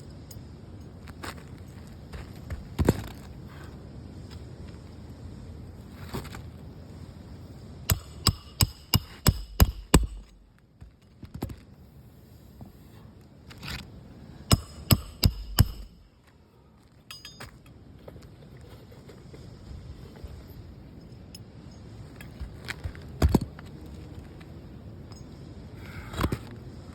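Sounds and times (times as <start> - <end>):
metal tool clinking on shingles: 14.5 - 16.2, 17.0 - 18.6, 20.5 - 23.7, 25.0 - 25.4.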